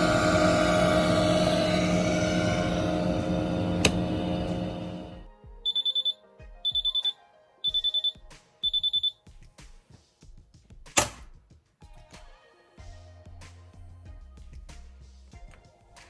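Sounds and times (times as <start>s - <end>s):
washing machine motor and drum: 0.0s - 5.2s
sharp click: 0.6s - 4.8s, 11.0s - 11.3s
rapid high beeps: 5.7s - 7.1s, 7.7s - 9.1s.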